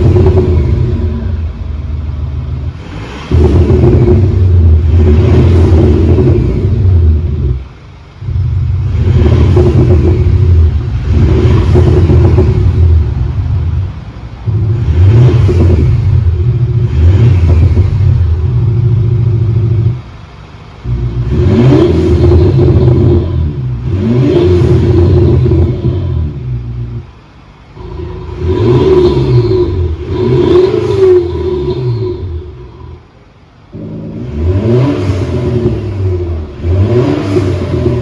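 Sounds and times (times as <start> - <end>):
diesel car engine revving: 0.0 - 38.0
synthetic exhaust note: 20.8 - 38.0.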